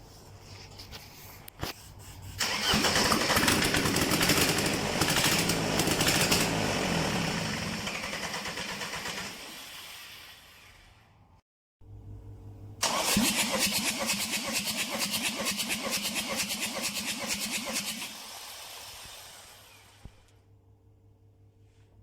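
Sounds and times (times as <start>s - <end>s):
diesel engine starting and running: 2.4s - 11.2s, 12.8s - 20.3s.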